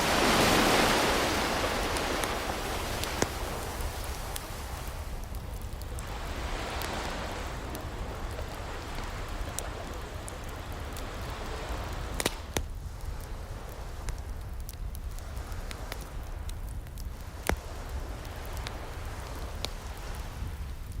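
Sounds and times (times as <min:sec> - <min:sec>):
ocean wave washing in: 0:00.0 - 0:05.4, 0:06.0 - 0:12.5
sharp fire pops: 0:00.0 - 0:21.0
wood fire crackling: 0:00.0 - 0:21.0.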